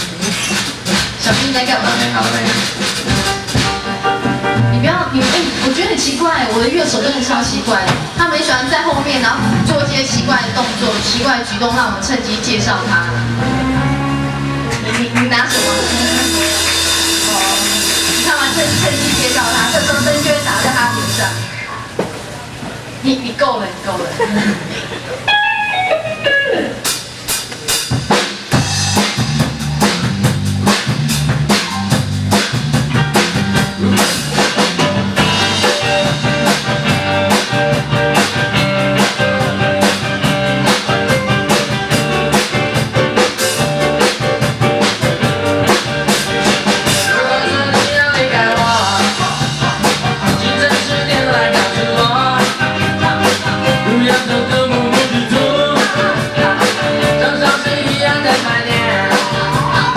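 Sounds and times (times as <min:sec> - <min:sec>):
drum kit beat: 0:00.0 - 0:21.6, 0:26.2 - 0:59.9
electric guitar: 0:09.4 - 0:22.3, 0:25.1 - 0:27.2, 0:28.5 - 0:59.9
repeating bass line: 0:12.9 - 0:21.6, 0:28.7 - 0:59.9.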